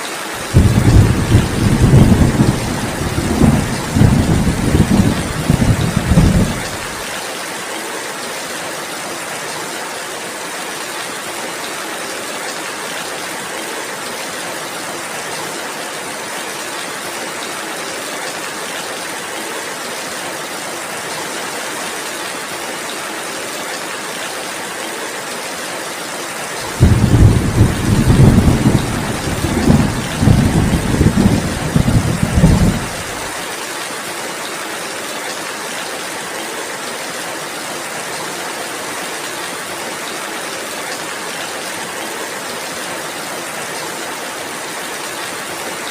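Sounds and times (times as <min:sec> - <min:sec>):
rain hissing: 0:00.4 - 0:07.1, 0:26.6 - 0:33.6
loud low fluttering rumble: 0:26.8 - 0:33.1.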